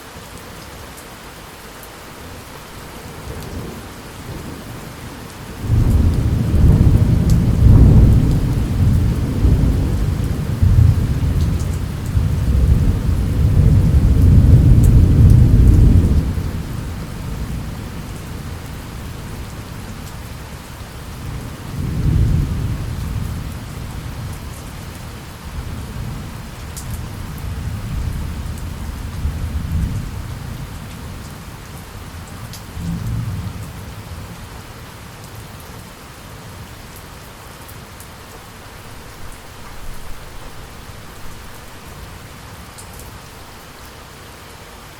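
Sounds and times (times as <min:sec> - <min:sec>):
rain falling: 0:00.0 - 0:44.9
thunder rumbling: 0:03.1 - 0:19.5.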